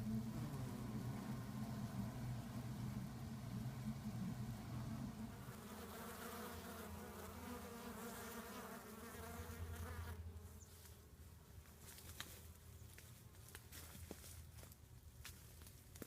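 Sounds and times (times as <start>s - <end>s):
bees buzzing: 0.0s - 10.3s.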